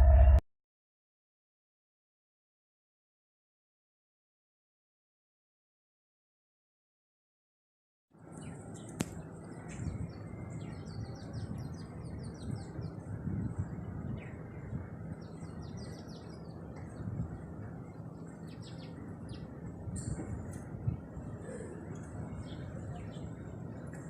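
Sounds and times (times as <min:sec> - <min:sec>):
low outdoor rumble: 0:08.2 - 0:24.0
small birds chirping: 0:08.2 - 0:24.0.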